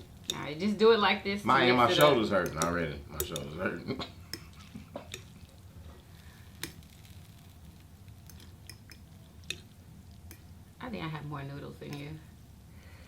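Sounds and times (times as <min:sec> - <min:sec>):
low steady hum: 0:00.0 - 0:13.0
utensils clicking against bowl: 0:01.9 - 0:03.6, 0:04.3 - 0:05.4, 0:08.3 - 0:09.7.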